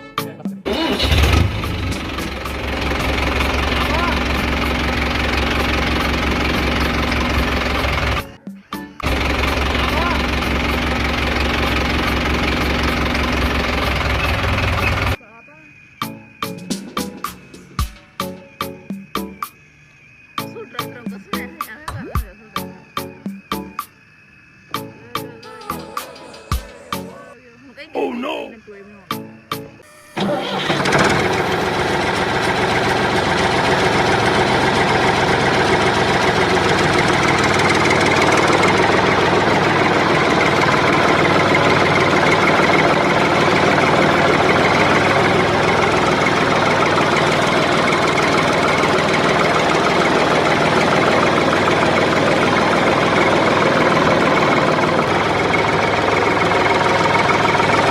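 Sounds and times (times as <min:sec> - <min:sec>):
tractor engine idling: 0:00.6 - 0:08.4, 0:09.0 - 0:15.2, 0:29.8 - 0:57.9
rapid knocking rattle: 0:01.0 - 0:08.3, 0:09.0 - 0:15.2, 0:30.2 - 0:57.9.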